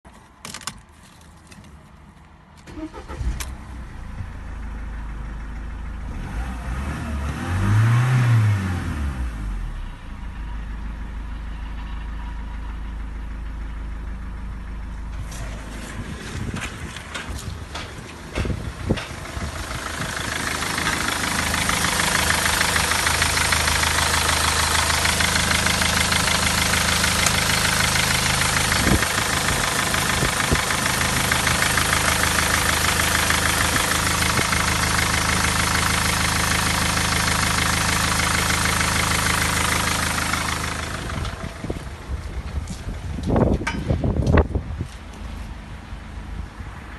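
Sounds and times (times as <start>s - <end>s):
diesel engine idling: 2.6s - 6.9s, 8.8s - 46.9s.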